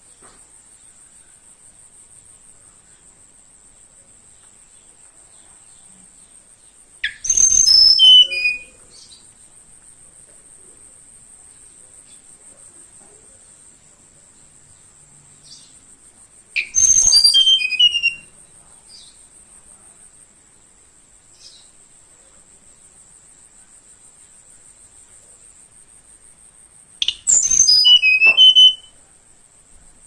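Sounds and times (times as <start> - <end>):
high insect drone: 0.0 - 30.0
bird whistled song: 7.0 - 9.2, 16.6 - 18.3, 27.0 - 29.0.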